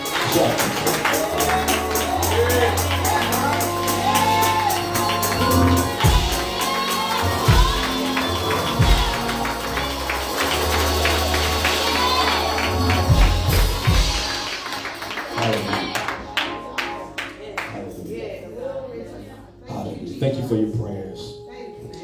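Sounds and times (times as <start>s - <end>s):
bass notes: 0.0s - 14.4s
rhythmic tambourine: 0.0s - 17.0s
keyboard chords: 0.0s - 22.0s.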